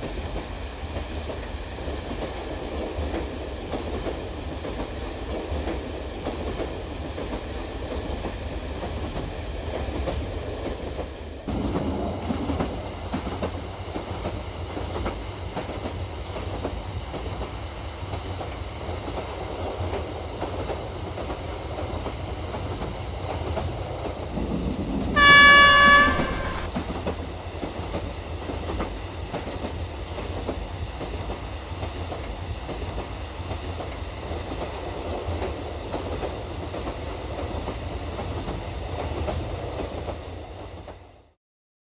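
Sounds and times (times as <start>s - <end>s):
toy train rumbling on track: 19.4s - 31.4s
toy train horn blast: 25.2s - 26.8s.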